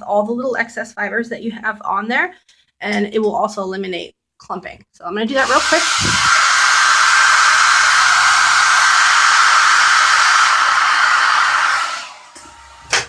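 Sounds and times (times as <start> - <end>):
hair dryer blowing: 5.3 - 13.0.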